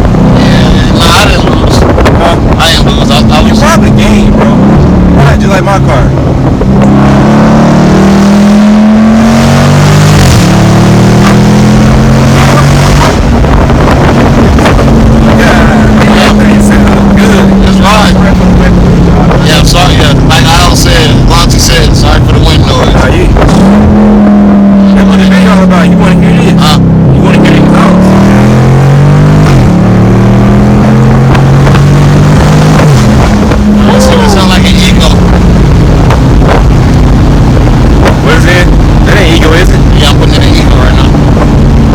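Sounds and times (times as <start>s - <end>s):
car exhaust note: 0.0s - 41.9s.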